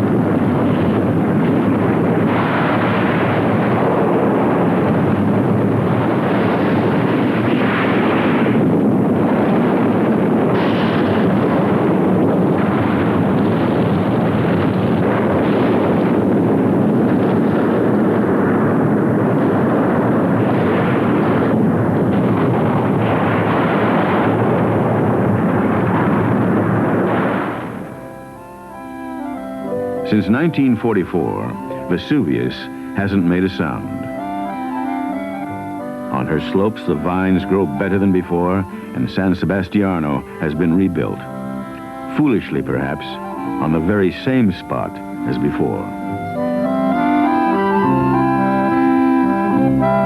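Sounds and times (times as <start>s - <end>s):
volcano rumbling roar with blasts: 0.0s - 28.2s.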